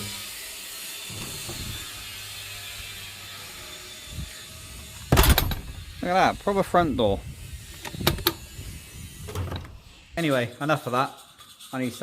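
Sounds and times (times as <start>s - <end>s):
mechanical clicking and tool noise: 4.3s - 6.0s, 7.6s - 10.0s.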